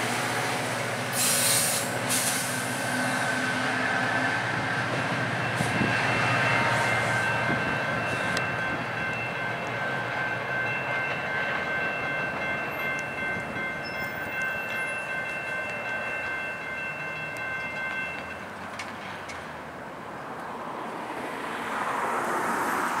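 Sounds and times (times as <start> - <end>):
train rumble: 0.0 - 20.9
car passing: 20.6 - 23.0.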